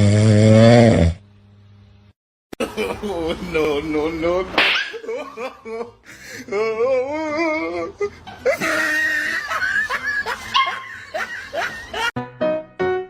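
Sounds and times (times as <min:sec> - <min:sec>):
piano music: 0:12.2 - 0:13.0.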